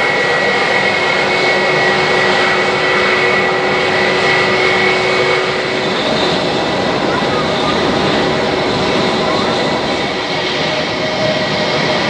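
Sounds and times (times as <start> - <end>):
high thin engine whine: 0.0 - 12.0
jet engines rushing: 0.0 - 12.0.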